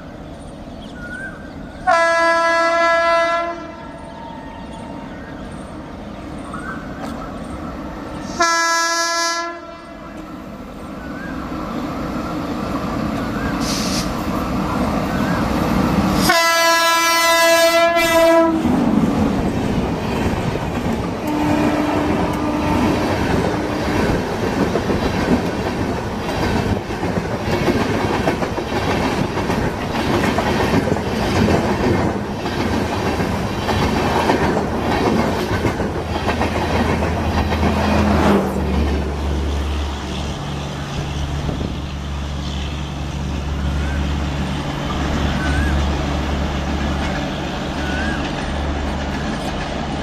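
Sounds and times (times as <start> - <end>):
locomotive horn blast: 1.9 - 4.8, 8.2 - 10.2, 16.2 - 18.8, 21.2 - 23.9
train wheels clickety-clack: 18.2 - 39.2, 44.6 - 50.0.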